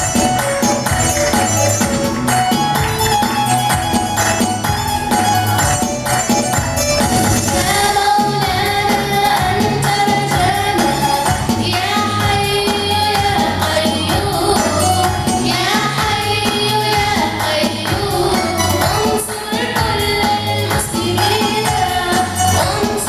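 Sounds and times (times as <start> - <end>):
backing music with bass and tambourine: 0.0 - 23.0
children's choir singing: 7.5 - 23.0.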